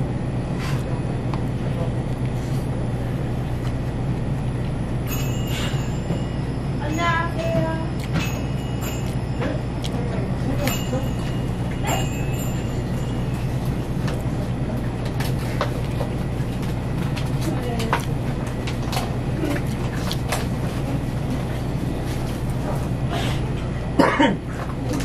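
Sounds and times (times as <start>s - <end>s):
low background hum: 0.0s - 25.0s
close-mouthed chewing: 9.8s - 10.0s, 15.0s - 22.9s.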